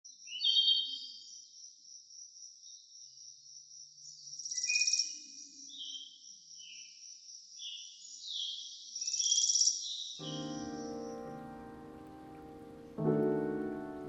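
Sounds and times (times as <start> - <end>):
bird chirps: 0.1 - 14.0
bird trill: 7.6 - 14.0.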